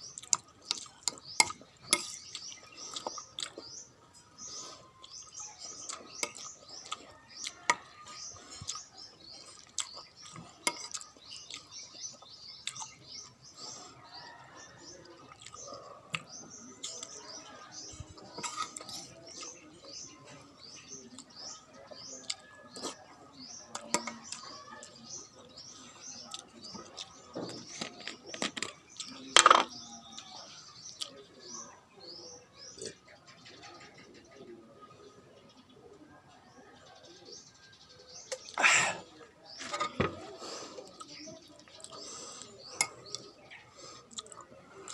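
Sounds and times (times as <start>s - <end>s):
small birds chirping: 0.0s - 44.9s
cutlery clinking against bowl: 0.3s - 3.2s, 10.2s - 11.1s, 18.3s - 19.6s, 23.8s - 24.5s, 27.5s - 29.8s
cutlery clatter: 1.1s - 2.3s, 18.3s - 19.4s, 27.4s - 29.8s, 39.6s - 40.2s.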